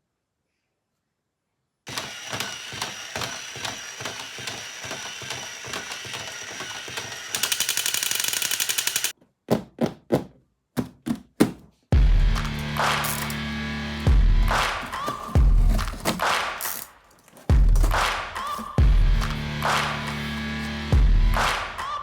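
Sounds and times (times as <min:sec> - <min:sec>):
fast buzzing rattle: 0:01.9 - 0:09.1
toy gun shot sounds: 0:01.9 - 0:09.1
toy gun clicking: 0:01.9 - 0:09.2.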